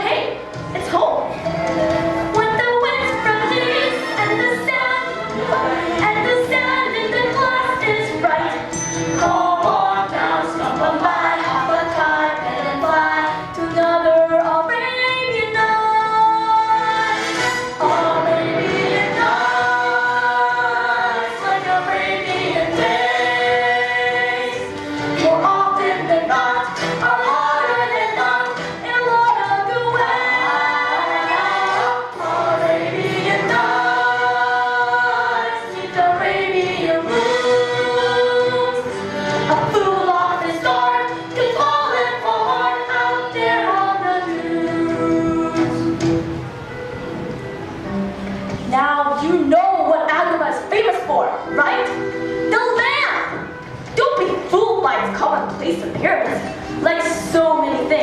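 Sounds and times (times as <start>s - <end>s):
musical accompaniment: 0.0s - 58.0s
cast singing in chorus: 17.8s - 39.0s.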